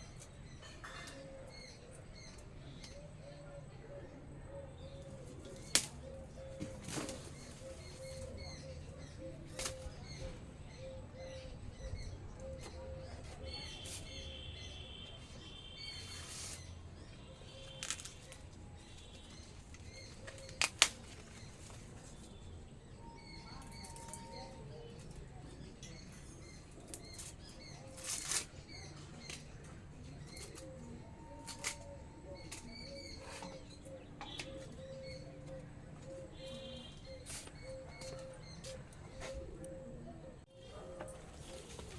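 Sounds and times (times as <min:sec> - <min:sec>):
small birds chirping: 0:00.0 - 0:41.9
sharp snaps and rustles: 0:05.2 - 0:08.3, 0:09.5 - 0:09.9, 0:17.6 - 0:22.4, 0:26.6 - 0:30.8, 0:31.4 - 0:32.8.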